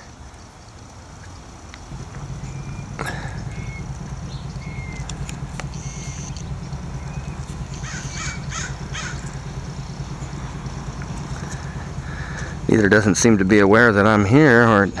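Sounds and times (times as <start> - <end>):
birds chirping: 0.0 - 15.0
harsh bird calls: 0.0 - 15.0
steady low hum: 0.0 - 15.0.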